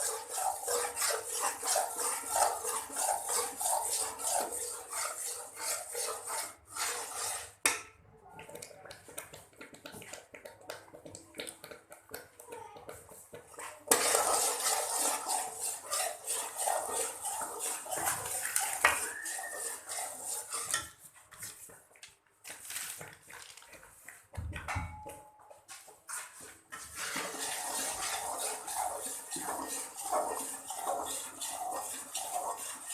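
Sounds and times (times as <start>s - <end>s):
metal spoon scraping a pot: 0.0s - 7.8s, 13.0s - 21.6s, 26.1s - 32.9s.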